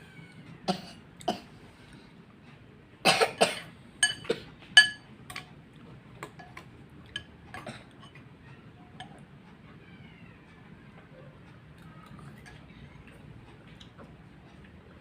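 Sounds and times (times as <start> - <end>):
rough eating noises: 3.8 - 9.6, 10.9 - 15.0
utensil clinking against bowl: 4.0 - 5.5, 6.2 - 8.2.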